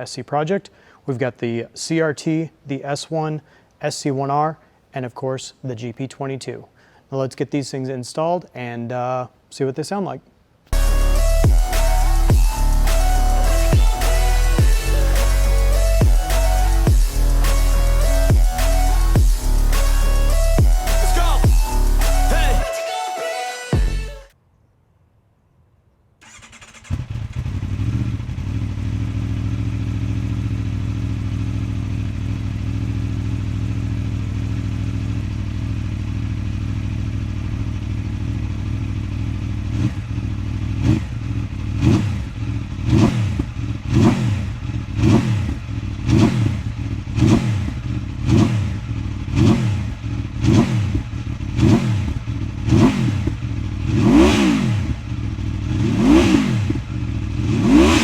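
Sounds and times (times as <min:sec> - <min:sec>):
engine revving: 0:10.7 - 0:22.7, 0:26.2 - 0:33.8, 0:39.6 - 0:58.0
motorcycle engine idling: 0:26.2 - 0:54.0, 0:54.7 - 0:57.7.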